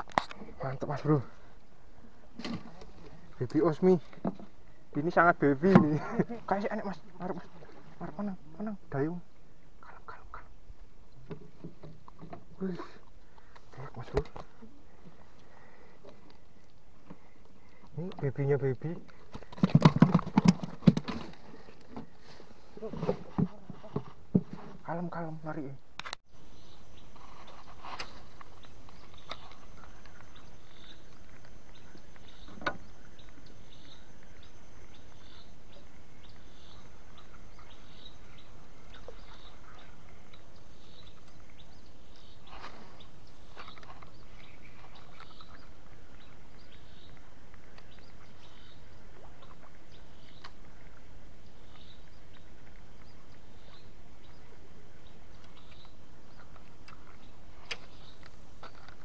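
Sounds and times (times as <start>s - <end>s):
background hiss: 0.0s - 19.7s, 20.8s - 59.0s
bird chirping: 24.9s - 59.0s.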